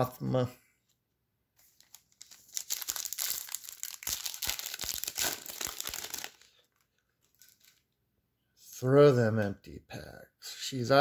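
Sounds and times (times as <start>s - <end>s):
foil wrapper crinkling and tearing: 1.6s - 7.9s.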